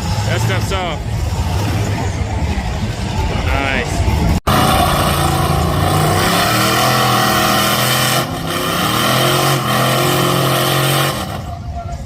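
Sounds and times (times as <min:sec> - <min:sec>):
truck engine revving hard: 0:04.4 - 0:11.6.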